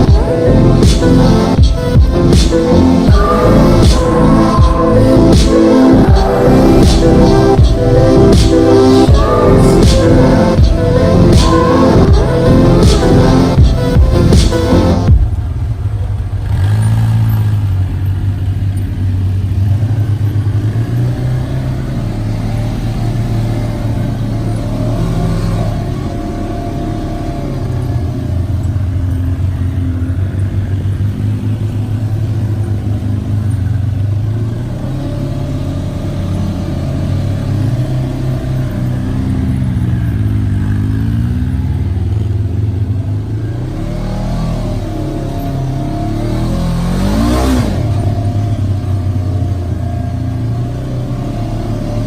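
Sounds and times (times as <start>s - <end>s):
off-road vehicle engine revving: 0.0s - 52.0s.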